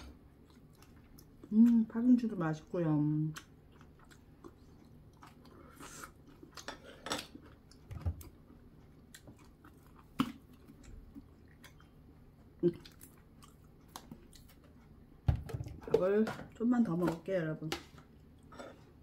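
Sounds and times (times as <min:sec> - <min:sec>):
wet chewing: 0:00.0 - 0:02.0, 0:03.1 - 0:15.0.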